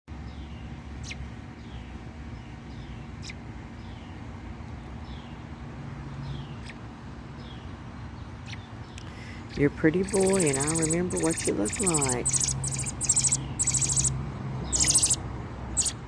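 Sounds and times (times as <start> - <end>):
steady low rumble: 0.2 - 16.0
fledgling bird high chirps: 8.4 - 16.0
sharp ticks: 10.0 - 15.2, 15.8 - 16.0.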